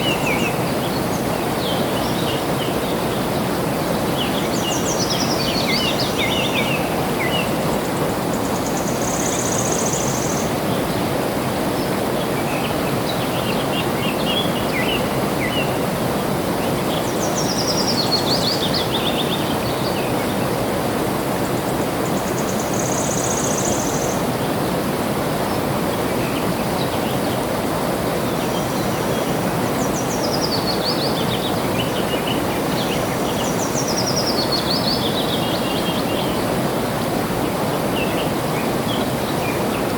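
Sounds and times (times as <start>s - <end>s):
birds singing: 0.0s - 11.0s, 28.2s - 36.7s
flowing water rushing: 0.0s - 39.9s.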